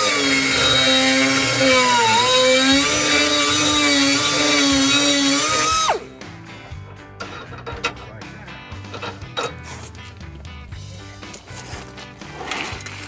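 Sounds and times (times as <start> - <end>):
electric grinder grinding metal: 0.0 - 6.2.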